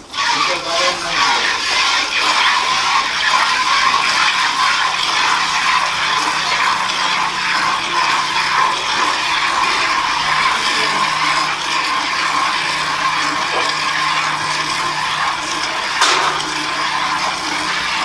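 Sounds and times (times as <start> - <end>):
machine whirring: 0.0 - 18.0
low machine hum: 4.9 - 18.0.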